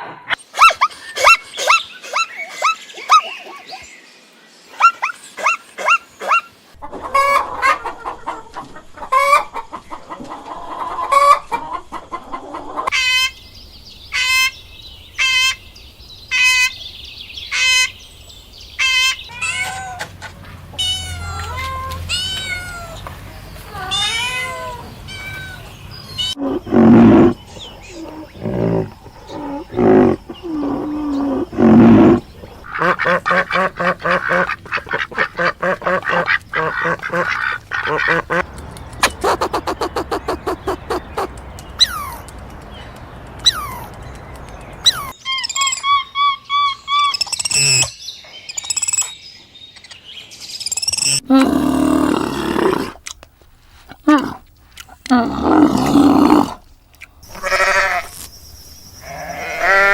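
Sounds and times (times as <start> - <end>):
chicken and rooster calls: 6.3 - 13.4
animal calls: 18.8 - 20.1, 23.7 - 42.3, 50.9 - 53.0, 53.9 - 58.2.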